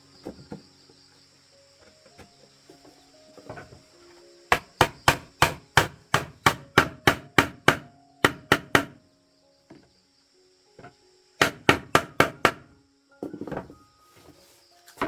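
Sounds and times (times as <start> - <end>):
high insect drone: 0.0 - 15.0
sharp strikes on wood: 4.5 - 9.0, 10.8 - 12.7.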